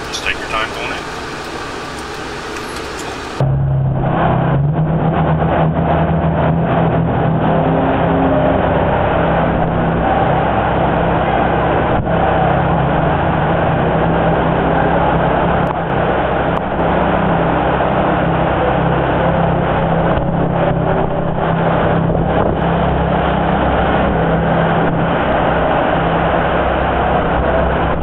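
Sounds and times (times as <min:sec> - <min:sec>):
car engine idling: 0:00.0 - 0:03.5.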